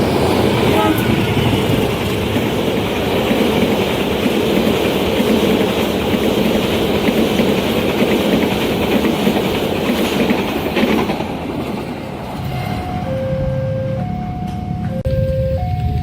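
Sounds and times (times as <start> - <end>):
train wheels clattering: 0.0 - 12.4.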